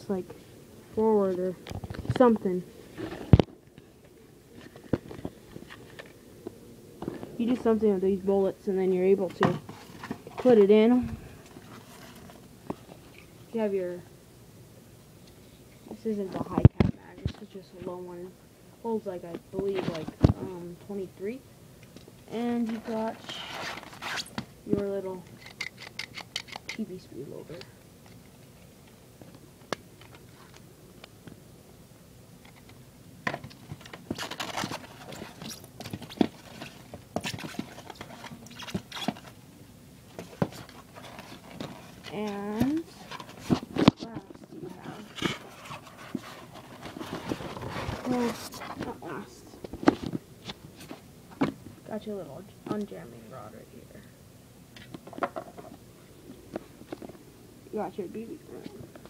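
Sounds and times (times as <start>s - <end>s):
handling plastic gun parts: 25.3s - 26.8s.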